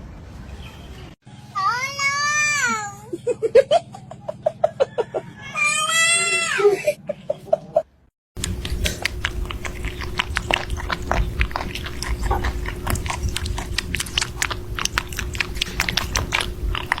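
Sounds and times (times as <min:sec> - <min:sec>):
faint hum: 0:08.4 - 0:17.0
pet crunching food: 0:08.4 - 0:17.0.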